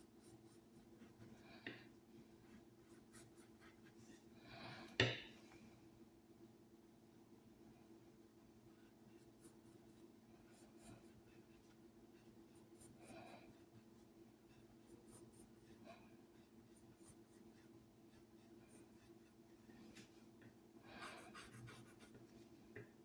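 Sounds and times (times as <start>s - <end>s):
pen scratching on paper: 21.0s - 22.2s.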